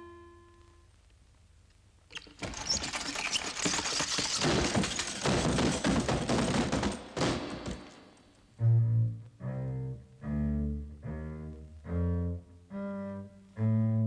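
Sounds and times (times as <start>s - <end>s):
rapid mechanical rattling clatter: 2.3s - 7.2s.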